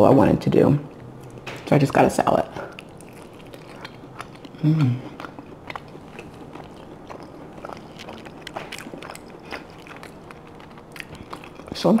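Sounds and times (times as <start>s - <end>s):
person chewing: 0.9s - 12.0s
person humming: 4.6s - 5.2s.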